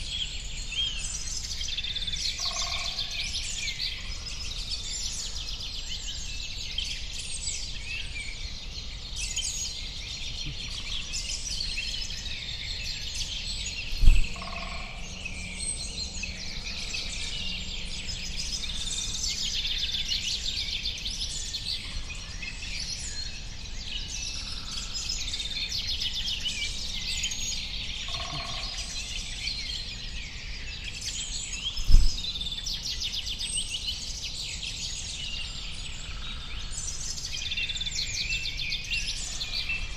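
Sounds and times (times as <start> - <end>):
small birds chirping: 0.0 - 39.9
low thumps: 14.0 - 14.4
lower bird calls: 27.9 - 29.2.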